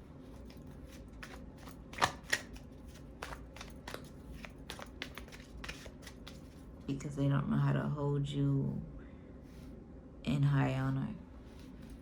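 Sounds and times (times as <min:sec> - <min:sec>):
cards being shuffled: 0:00.2 - 0:06.7
card snaps: 0:01.2 - 0:02.6.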